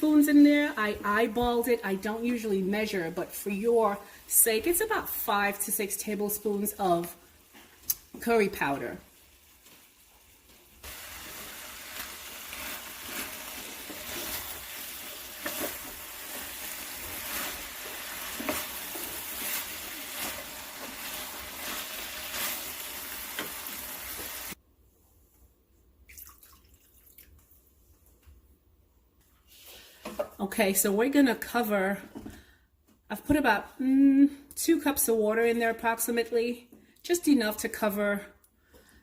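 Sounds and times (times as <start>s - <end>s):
water pouring into a pot: 26.1s - 27.5s.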